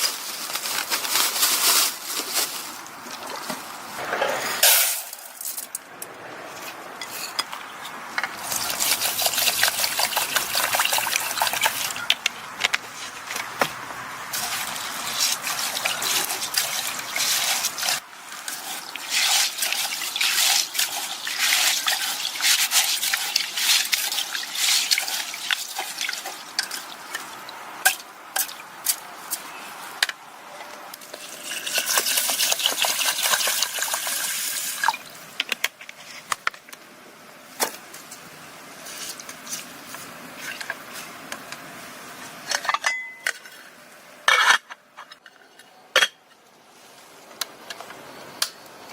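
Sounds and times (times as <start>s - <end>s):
water pouring into a vessel: 8.4s - 12.1s, 14.3s - 27.6s, 31.1s - 35.1s
water splashing and trickling: 8.4s - 30.0s, 31.0s - 35.4s.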